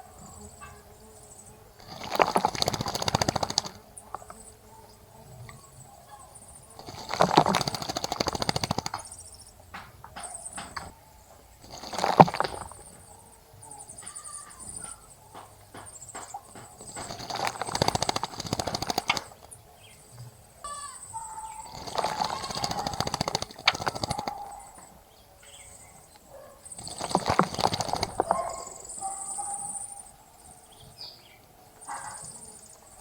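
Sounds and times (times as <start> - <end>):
birds splashing in water: 1.8 - 4.4, 6.8 - 9.4, 11.6 - 13.2, 14.1 - 19.7, 20.7 - 25.0, 26.6 - 29.2
faint high bird chirps: 10.2 - 18.7, 19.7 - 33.0.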